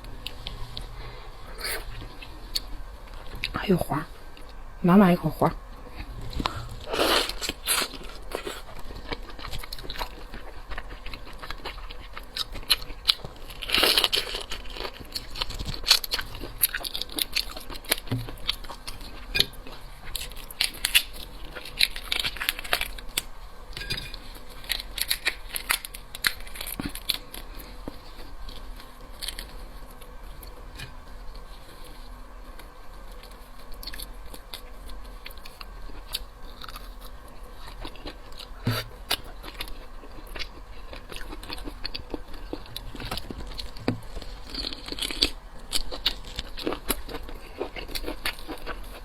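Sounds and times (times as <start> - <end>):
chewing: 24.2 - 49.0.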